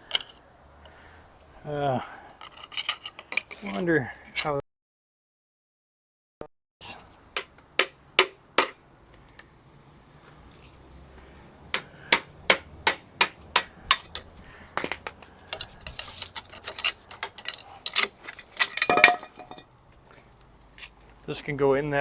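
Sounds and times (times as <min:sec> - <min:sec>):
metal parts clinking: 0:02.4 - 0:03.8, 0:13.9 - 0:19.7
metal-on-metal taps: 0:11.8 - 0:19.6.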